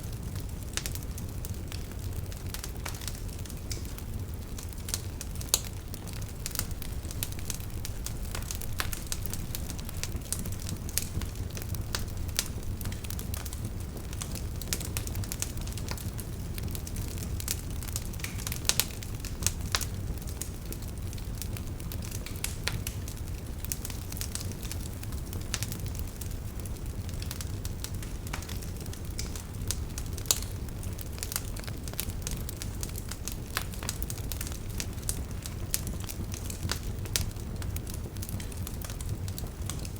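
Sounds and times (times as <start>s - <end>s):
burning wood crackling and popping: 0.0s - 39.9s
low rumble of flames: 0.0s - 39.9s.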